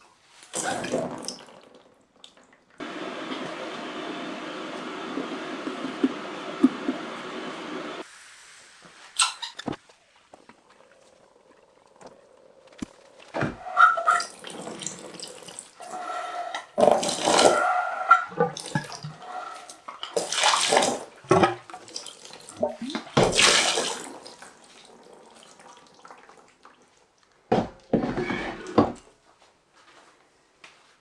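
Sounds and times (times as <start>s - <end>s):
splashing running water: 0.3s - 8.1s, 12.9s - 27.1s
steady hiss: 2.8s - 9.2s.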